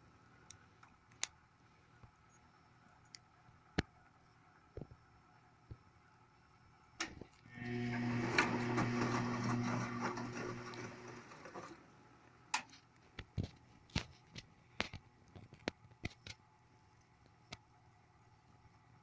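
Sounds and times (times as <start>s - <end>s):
washing machine motor humming: 7.5s - 12.0s.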